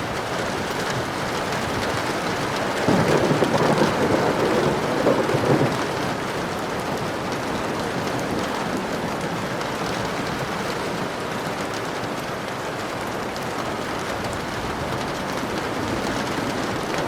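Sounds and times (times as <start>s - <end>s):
dense rainfall: 0.0s - 17.0s
low rumble of thunder: 0.6s - 11.1s.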